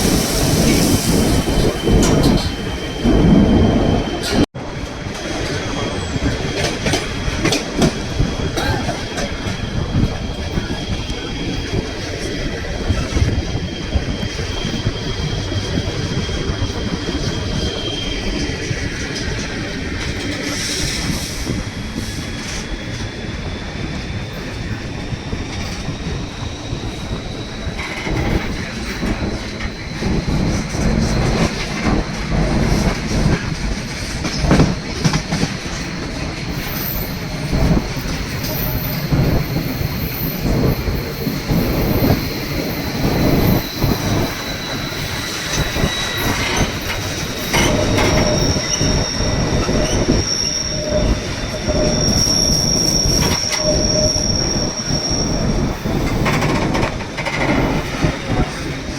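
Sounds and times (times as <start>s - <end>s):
train rolling rumble: 0.0s - 58.9s
high wheel squeal: 36.0s - 58.9s
wheels clacking over rails: 55.5s - 58.9s.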